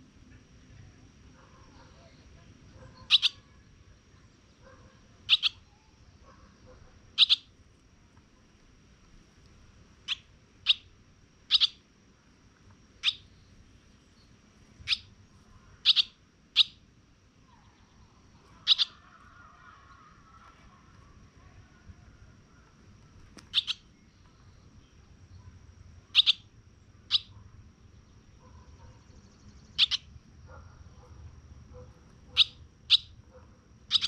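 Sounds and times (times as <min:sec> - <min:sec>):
bird giving sharp chirps: 0:03.0 - 0:03.5, 0:05.2 - 0:05.8, 0:07.2 - 0:07.5, 0:10.0 - 0:10.9, 0:11.5 - 0:11.8, 0:13.0 - 0:13.5, 0:14.8 - 0:15.2, 0:15.8 - 0:16.8, 0:17.6 - 0:20.2, 0:23.4 - 0:24.1, 0:26.1 - 0:26.5, 0:27.1 - 0:27.3, 0:29.5 - 0:30.1, 0:32.4 - 0:33.2.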